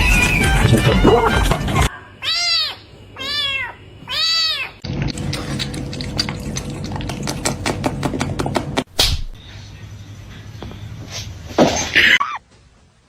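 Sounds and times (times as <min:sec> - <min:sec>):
cat meowing: 0:00.0 - 0:04.8.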